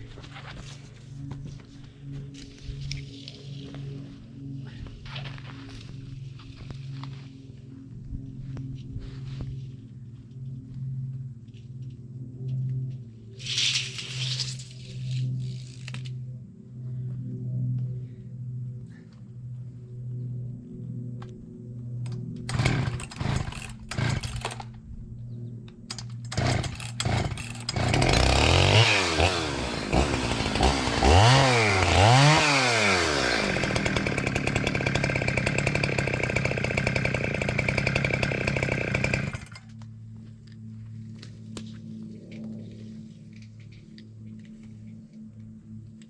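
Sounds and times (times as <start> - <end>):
chainsaw revving: 22.5 - 24.7, 25.9 - 39.6.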